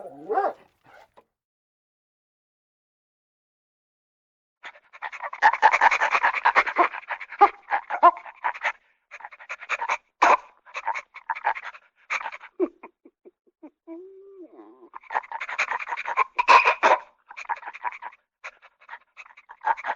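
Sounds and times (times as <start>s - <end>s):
dog panting: 0.0s - 1.2s, 15.0s - 16.3s.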